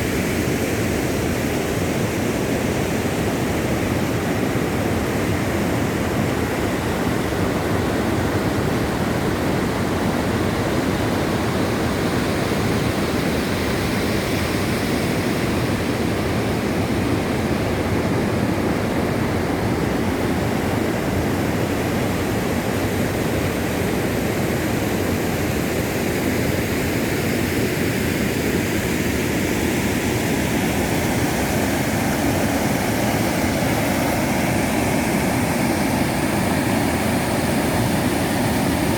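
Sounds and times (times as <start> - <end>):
waterfall rushing: 26.7 - 38.9.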